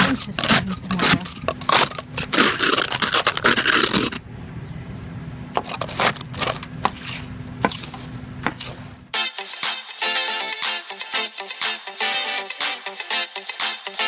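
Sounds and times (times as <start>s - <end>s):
snow and ice scraping: 0.0s - 4.2s, 5.6s - 8.9s.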